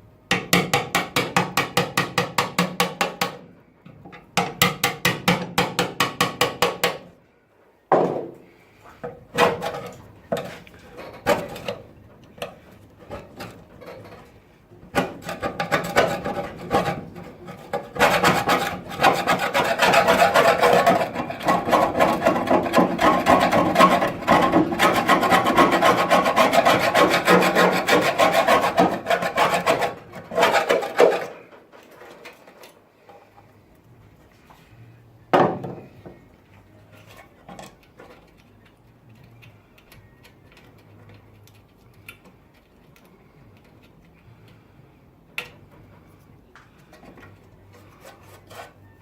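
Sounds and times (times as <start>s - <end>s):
abrasive scraping on rusty steel: 15.0s - 32.1s, 47.7s - 49.0s.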